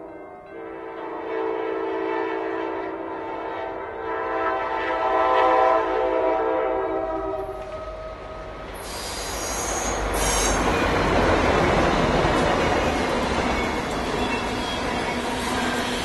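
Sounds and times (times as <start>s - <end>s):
passing train rumble: 0.0s - 16.0s
locomotive air horn: 0.5s - 10.6s
high-pitched wheel squeal: 8.8s - 10.9s.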